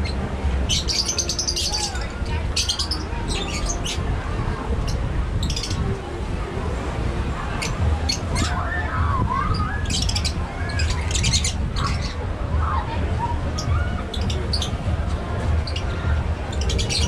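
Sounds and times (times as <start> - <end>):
birds squawking: 0.0 - 4.1, 7.6 - 14.8
birds chirping: 0.0 - 6.2, 7.3 - 17.0
steady low rumble: 0.0 - 17.0.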